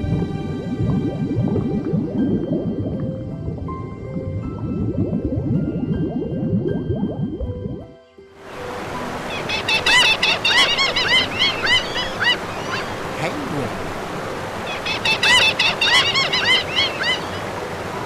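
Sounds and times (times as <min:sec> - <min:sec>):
birds calling: 0:08.5 - 0:18.0.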